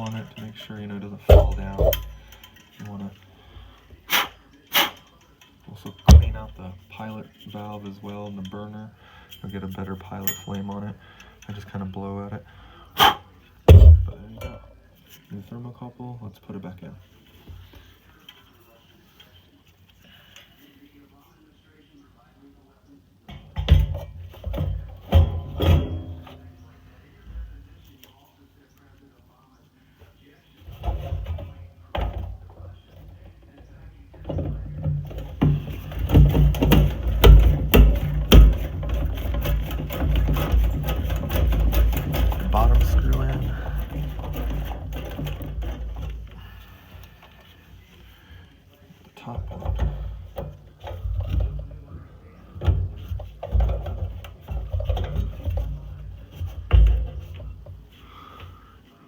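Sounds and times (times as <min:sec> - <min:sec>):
clicks of metal parts: 0:00.0 - 0:06.6, 0:09.3 - 0:11.6
screwdriver knocking on metal: 0:34.3 - 0:46.1.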